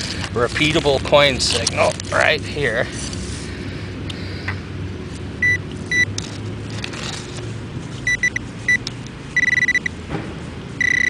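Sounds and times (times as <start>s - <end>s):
metal detector beeps: 5.4s - 6.1s, 8.0s - 8.8s, 9.4s - 9.9s, 10.8s - 11.0s.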